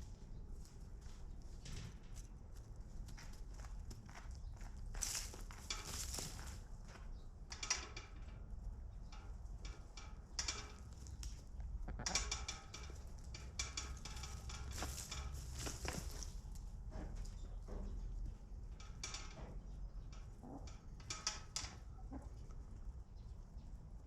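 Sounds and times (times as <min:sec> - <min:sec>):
chickens moving about: 0:00.5 - 0:07.8, 0:09.6 - 0:18.5.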